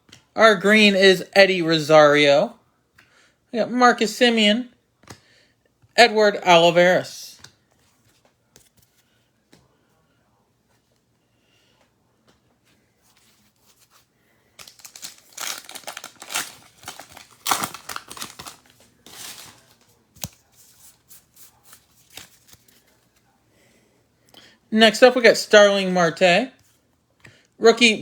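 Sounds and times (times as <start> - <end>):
cards rustling and shuffling: 5.0 - 6.0, 7.3 - 23.4
wrapper tearing and crinkling: 14.6 - 20.3.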